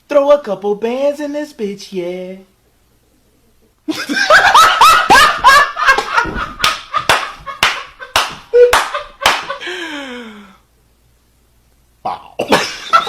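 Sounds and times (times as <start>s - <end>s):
men laughing hysterically: 3.9s - 9.8s, 12.5s - 13.0s
hands clapping: 5.9s - 9.6s.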